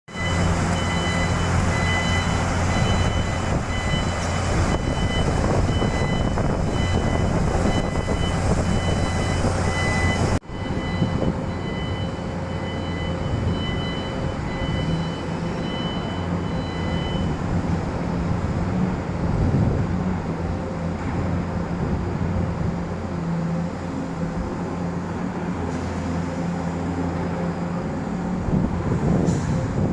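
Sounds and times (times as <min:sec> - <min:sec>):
excavator diesel engine running: 0:00.1 - 0:29.9.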